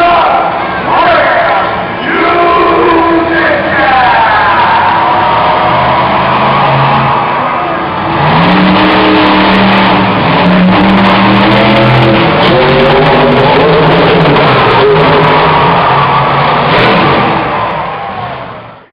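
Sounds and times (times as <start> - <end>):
truck engine revving: 0.0 - 18.9.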